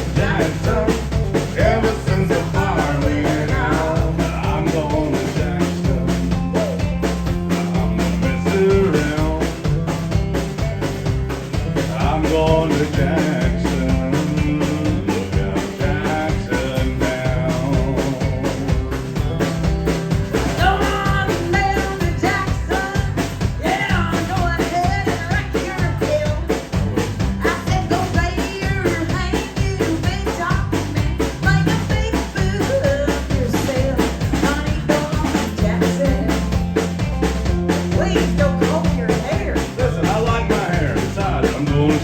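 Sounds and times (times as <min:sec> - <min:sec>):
live country band playing: 0:00.0 - 0:42.0.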